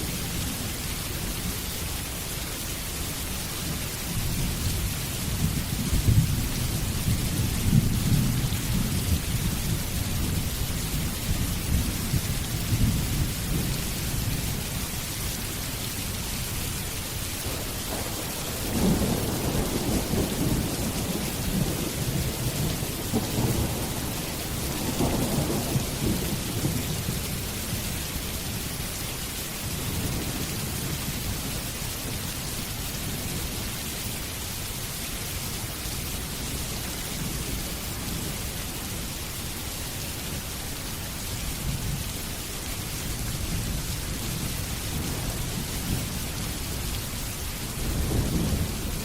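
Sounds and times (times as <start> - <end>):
heavy rain: 0.0 - 49.0
rolling thunder: 17.4 - 27.2, 47.7 - 49.0.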